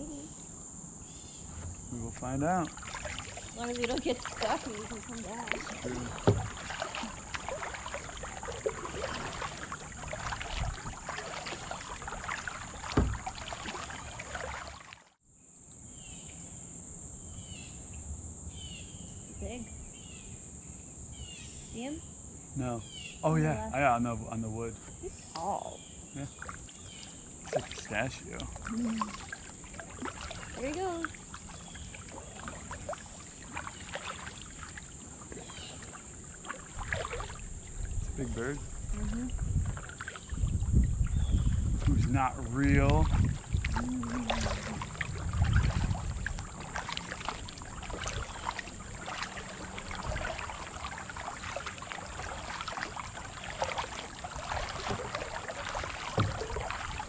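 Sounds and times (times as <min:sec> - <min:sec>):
high-pitched insect chorus: 0:00.0 - 0:14.8, 0:15.4 - 0:57.0
crickets trilling: 0:00.0 - 0:57.0
paddle splashing water: 0:01.0 - 0:15.2, 0:22.6 - 0:57.0
paddle knocking hull: 0:01.4 - 0:14.9, 0:26.3 - 0:57.0.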